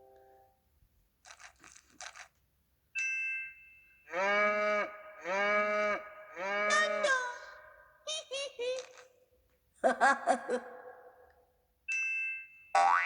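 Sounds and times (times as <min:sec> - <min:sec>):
toy clicks: 0:01.3 - 0:02.4, 0:08.1 - 0:09.2
toy cow moos: 0:04.1 - 0:07.7.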